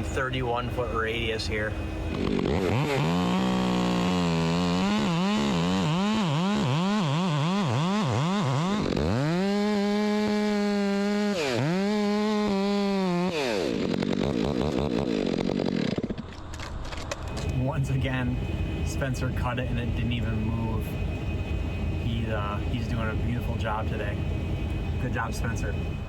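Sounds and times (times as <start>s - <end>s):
chainsaw cutting wood: 2.1s - 17.6s.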